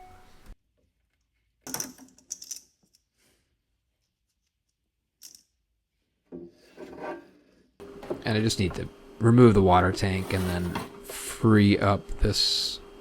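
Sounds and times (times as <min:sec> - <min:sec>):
small machine parts clicking and rattling: 0:01.6 - 0:03.1, 0:04.6 - 0:05.6.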